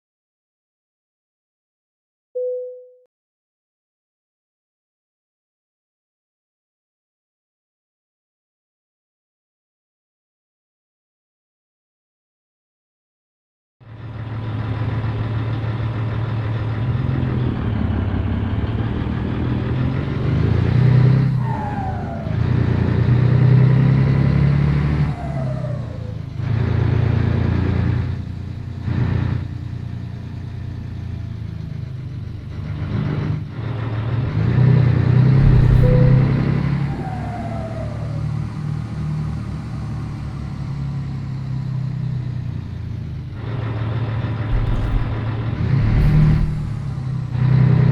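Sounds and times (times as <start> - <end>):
truck diesel engine accelerating: 13.9 - 47.9
short falling whistles: 35.4 - 38.1.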